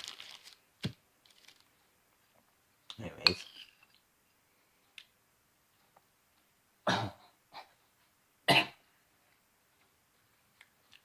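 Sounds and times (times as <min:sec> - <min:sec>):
person coughing: 0:06.9 - 0:07.7, 0:08.5 - 0:08.8.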